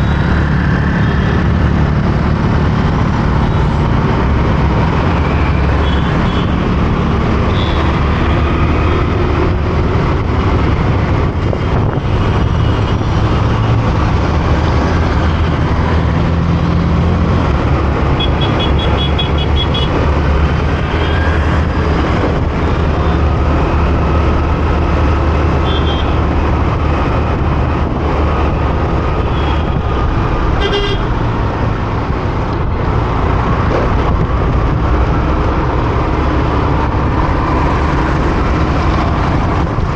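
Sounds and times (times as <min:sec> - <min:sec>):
road noise: 0:00.0 - 0:39.9
vehicle horns beeping: 0:05.8 - 0:06.6, 0:18.2 - 0:20.0, 0:25.6 - 0:26.2, 0:30.6 - 0:31.2.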